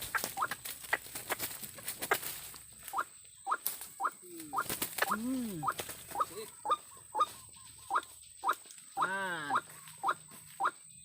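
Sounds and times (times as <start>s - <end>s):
low arching bird croaks: 2.1s - 10.8s
squeaky rising bird chirps: 2.9s - 10.8s.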